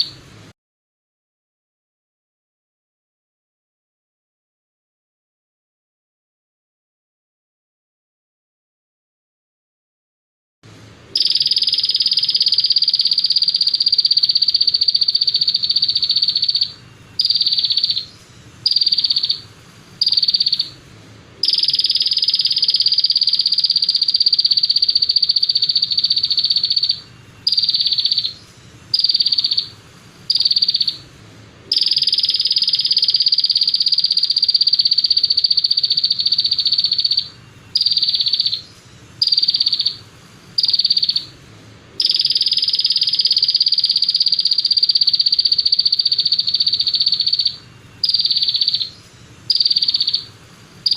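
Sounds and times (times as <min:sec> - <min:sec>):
songbird buzzing trill: 0:11.2 - 0:19.4, 0:20.0 - 0:20.8, 0:21.4 - 0:31.0, 0:31.7 - 0:38.6, 0:42.0 - 0:50.9.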